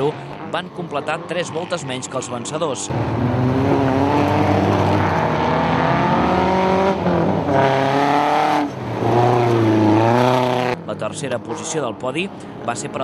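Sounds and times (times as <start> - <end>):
race car engine revving high: 2.8 - 10.8.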